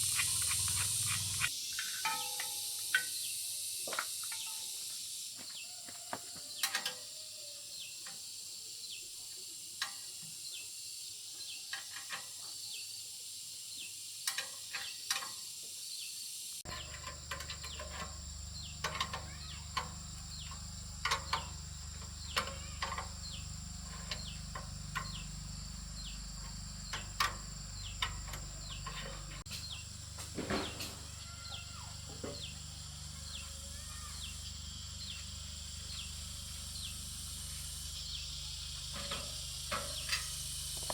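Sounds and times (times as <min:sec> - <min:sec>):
high-pitched insect drone: 0:00.0 - 0:06.0, 0:06.6 - 0:40.9
insect chirps and clicks: 0:00.0 - 0:40.9.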